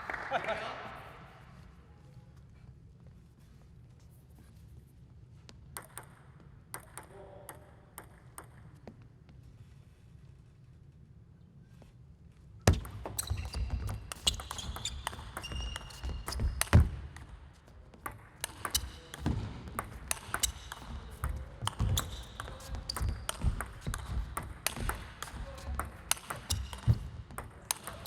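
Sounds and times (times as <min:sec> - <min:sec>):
crowd clapping: 0:00.0 - 0:01.5.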